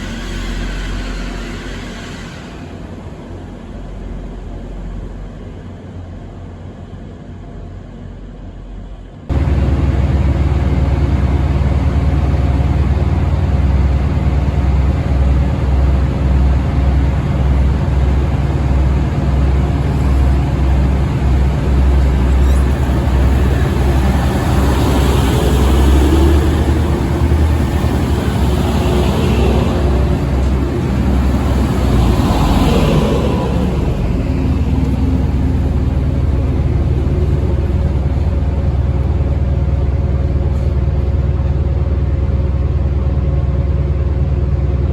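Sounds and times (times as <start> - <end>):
train engine rumbling: 0.0 - 44.9
higher engine sounds: 8.8 - 44.9.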